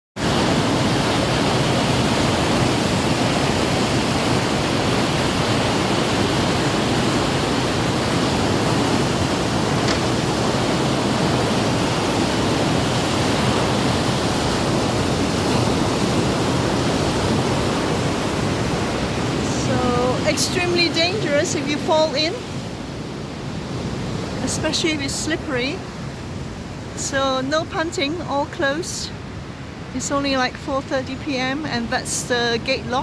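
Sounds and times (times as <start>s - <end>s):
water rushing through sluice gates: 0.2s - 26.0s.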